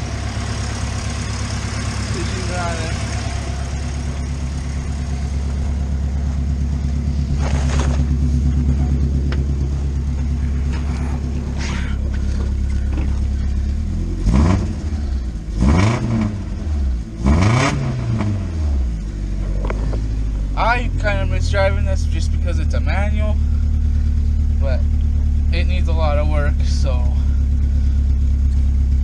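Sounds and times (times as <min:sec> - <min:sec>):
car engine idling: 0:00.0 - 0:29.0
car engine revving: 0:00.0 - 0:29.0.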